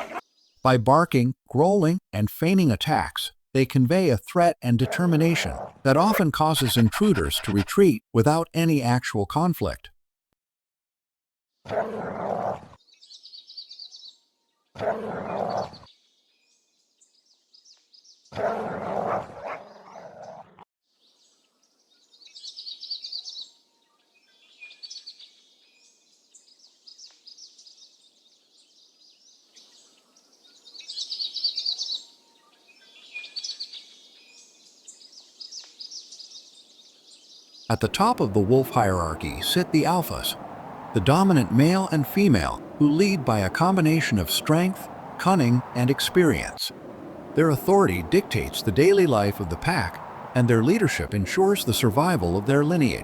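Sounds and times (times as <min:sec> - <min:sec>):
birds chirping: 0:05.0 - 0:08.0, 0:37.0 - 0:53.0.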